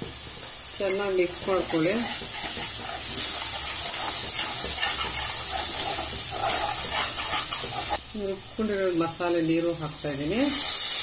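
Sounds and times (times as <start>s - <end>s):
spice paste sizzling in oil: 0.0s - 11.0s
steel spoon stirring: 0.8s - 8.0s.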